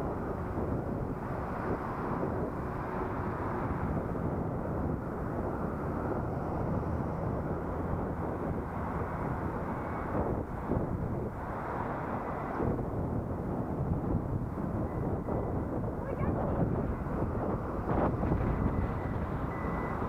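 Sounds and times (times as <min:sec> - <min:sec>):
vehicle noise: 0:00.0 - 0:20.0
wind rumble: 0:00.0 - 0:20.0.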